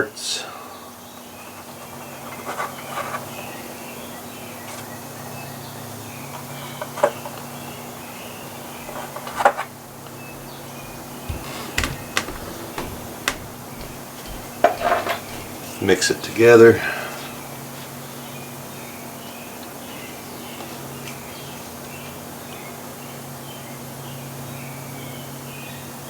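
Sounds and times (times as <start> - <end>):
light clicks and taps: 11.3 - 15.6.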